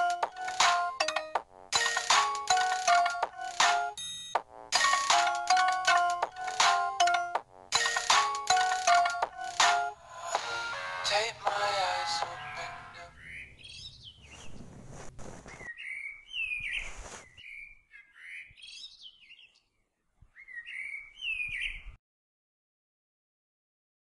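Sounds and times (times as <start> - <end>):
birds chirping: 11.8 - 14.8, 15.5 - 21.9.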